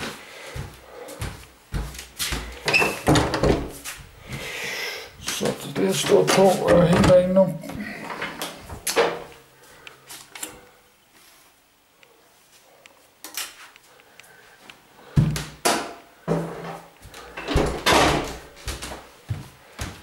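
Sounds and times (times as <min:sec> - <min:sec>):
objects knocking and bumping: 0:15.2 - 0:18.4.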